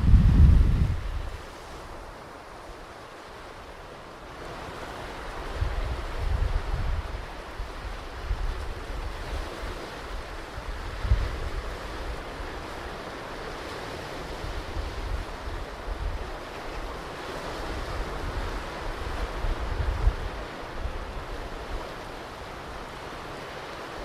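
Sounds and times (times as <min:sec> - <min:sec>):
wind buffeting microphone: 0:00.0 - 0:01.4, 0:05.5 - 0:12.5, 0:17.6 - 0:21.9
waves breaking on beach: 0:00.0 - 0:24.0.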